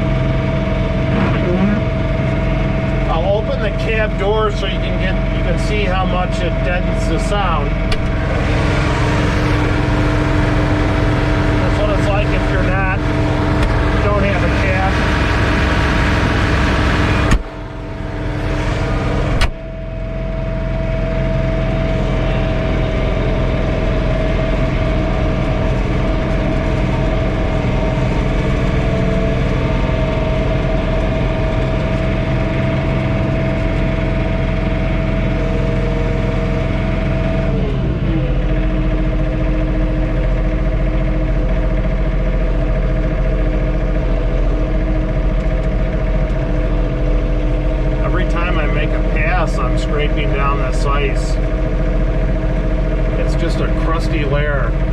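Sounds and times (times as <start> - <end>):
tractor diesel engine running: 0.0 - 54.9
cab door thud: 7.9 - 8.1, 17.3 - 17.5, 19.4 - 19.6.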